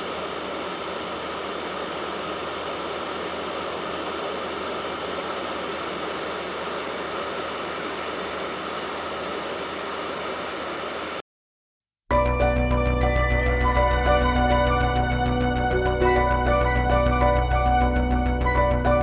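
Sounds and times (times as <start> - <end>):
vacuum cleaner motor whirring: 0.0 - 11.2.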